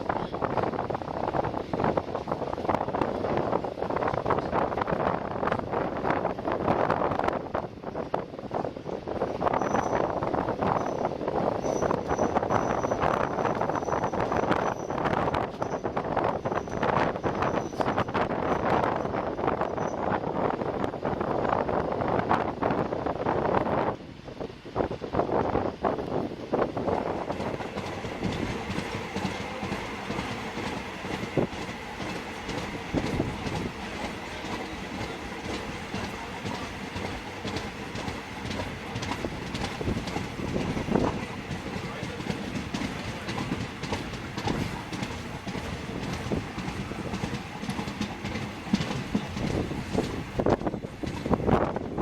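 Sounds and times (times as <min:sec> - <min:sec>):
train running on track: 0:00.0 - 0:52.0
wheel clicks over rails: 0:32.0 - 0:51.7.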